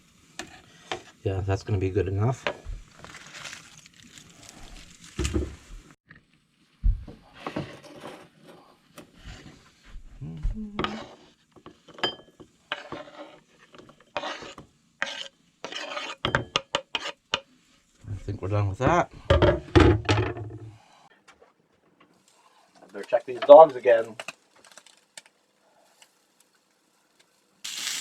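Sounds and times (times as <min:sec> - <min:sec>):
utensil scraping a pan: 0:00.4 - 0:01.2, 0:10.8 - 0:19.9.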